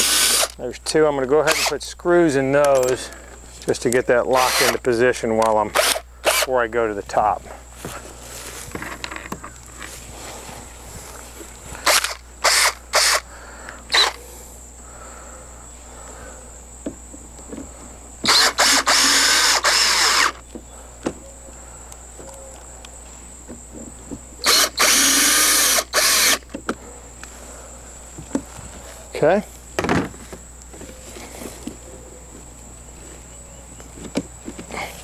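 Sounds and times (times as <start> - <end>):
power drill driving screws: 0.0 - 0.6, 1.4 - 1.8, 4.3 - 4.8, 5.7 - 6.5, 11.8 - 13.2, 13.9 - 14.2, 18.2 - 20.4, 24.4 - 26.4.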